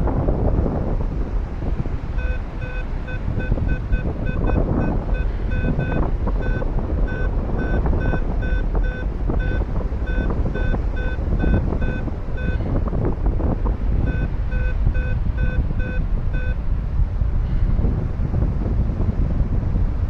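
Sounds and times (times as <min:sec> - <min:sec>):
wind noise on microphone: 0:00.0 - 0:20.0
variometer beeping: 0:01.6 - 0:16.7.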